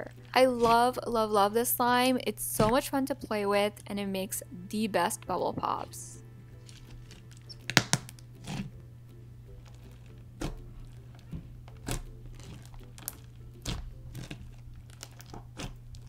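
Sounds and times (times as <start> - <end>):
steady low hum: 0.0 - 16.0
slime bubble pops and crackles: 7.6 - 8.2.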